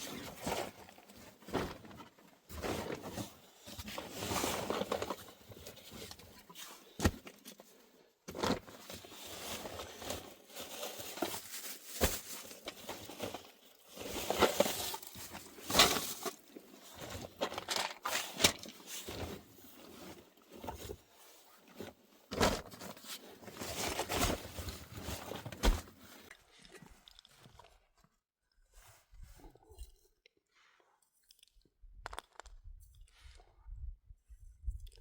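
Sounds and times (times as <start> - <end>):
crunching and rustling: 8.3 - 27.7.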